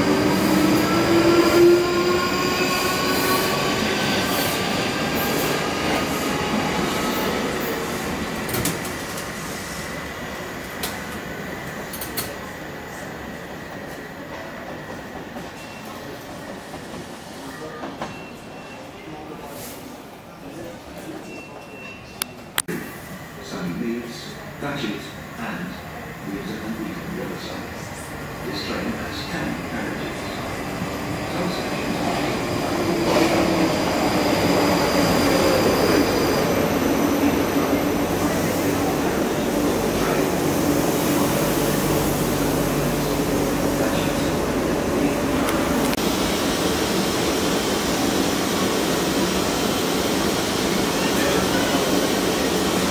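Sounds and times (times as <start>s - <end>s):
train wheels rushing on rails: 0.0s - 18.3s, 26.4s - 52.9s
electric train whining: 30.2s - 52.9s.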